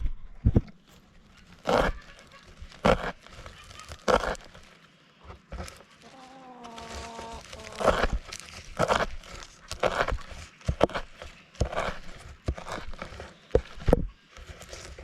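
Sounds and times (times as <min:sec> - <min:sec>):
drawn-out animal call: 0:06.0 - 0:08.3.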